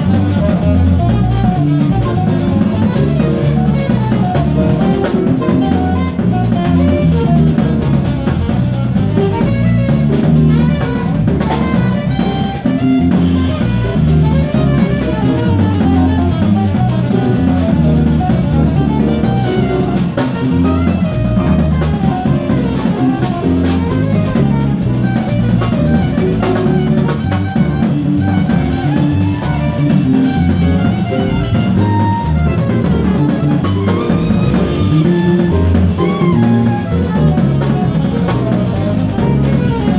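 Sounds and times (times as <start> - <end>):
bass playing low notes: 0.0 - 39.9
drum kit with cymbals: 0.0 - 39.9.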